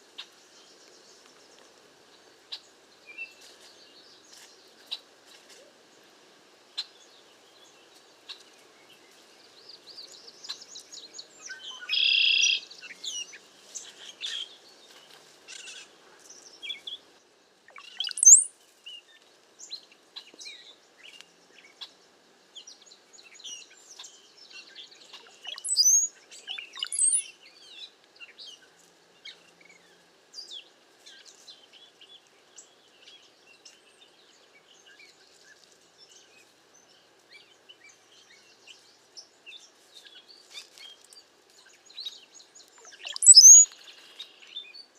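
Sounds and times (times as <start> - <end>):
flock of birds chirping: 0.0 - 44.9
buzzy bird call: 17.8 - 18.5, 25.4 - 27.2, 42.8 - 43.7
sharp rising bird whistles: 17.8 - 18.5, 25.5 - 26.1, 26.7 - 27.2, 43.0 - 43.7.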